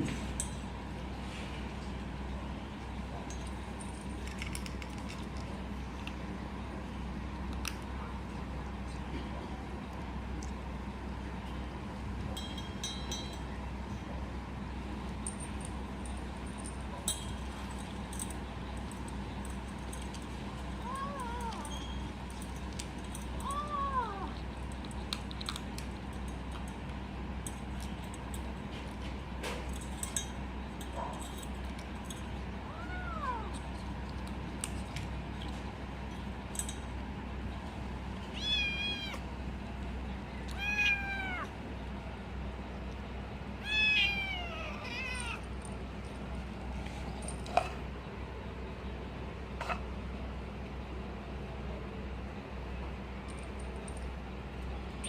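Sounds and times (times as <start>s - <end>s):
steady low hum: 0.0s - 55.0s
kitten meowing: 38.4s - 39.2s, 40.5s - 41.5s, 43.6s - 45.4s.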